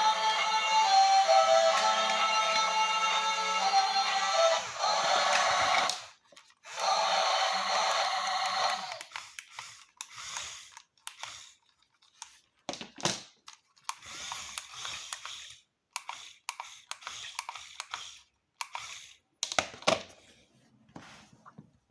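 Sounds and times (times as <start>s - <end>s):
music: 0.0s - 6.0s, 6.8s - 8.8s
small motors whirring: 3.2s - 11.6s
clicks and taps of model machines: 12.1s - 20.0s.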